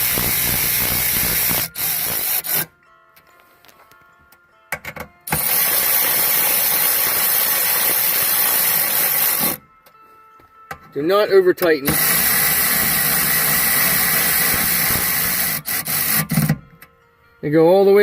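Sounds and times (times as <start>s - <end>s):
power ratchet driving bolts: 0.0s - 2.7s, 5.3s - 9.6s, 11.8s - 16.6s.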